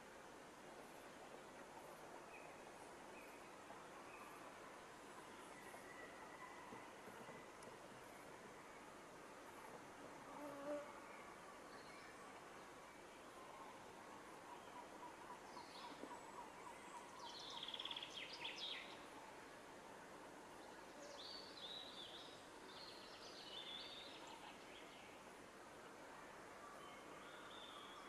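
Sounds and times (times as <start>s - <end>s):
steady background hiss: 0.0s - 28.0s
faint songbird singing: 10.4s - 19.7s, 20.5s - 25.4s, 26.4s - 28.0s.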